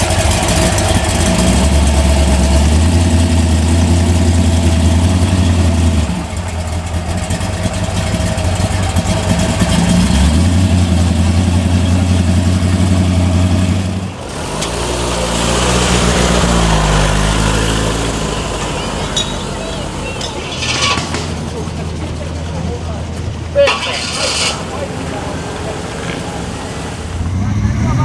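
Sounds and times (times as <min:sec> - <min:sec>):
muscle car engine rumbling: 0:00.0 - 0:28.0.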